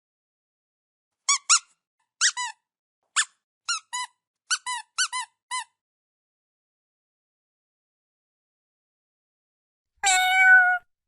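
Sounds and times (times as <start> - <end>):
kitten mewing: 10.0 - 10.9.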